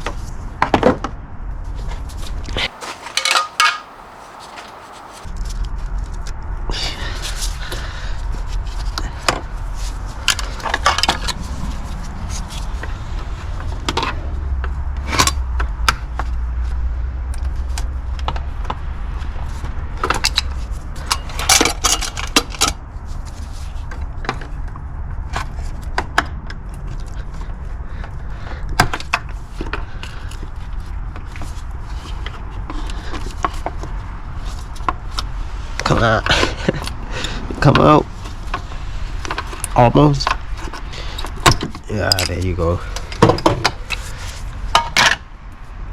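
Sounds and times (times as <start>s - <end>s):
metallic tool clinks and knocks: 2.7s - 5.2s
steady low rumble: 3.9s - 22.0s, 33.8s - 41.1s.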